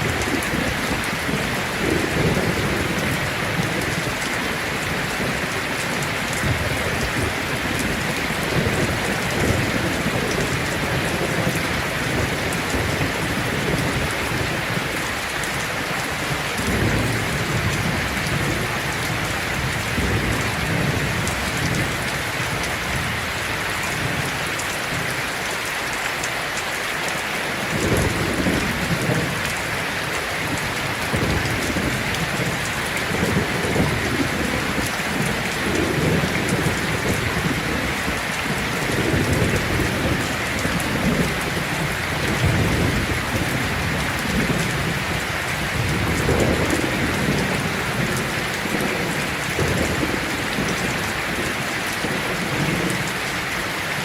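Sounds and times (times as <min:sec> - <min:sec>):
heavy rain on a tin roof: 0:00.0 - 0:54.0
thunder rumbling: 0:15.9 - 0:24.3, 0:27.6 - 0:53.4.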